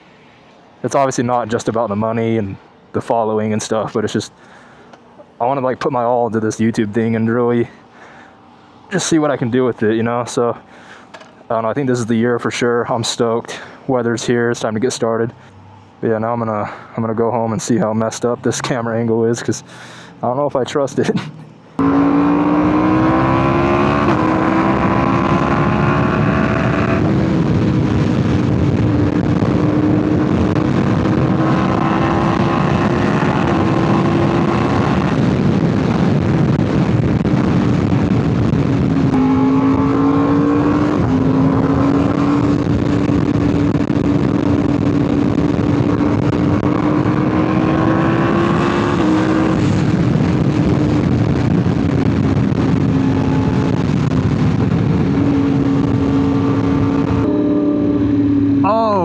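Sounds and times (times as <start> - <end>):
motorcycle engine under way: 21.8 - 35.3, 39.1 - 51.1, 52.0 - 59.0.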